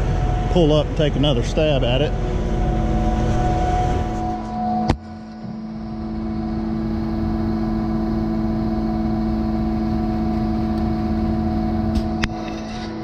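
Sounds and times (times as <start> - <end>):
diesel truck engine running: 0.0 - 4.7, 6.7 - 12.3.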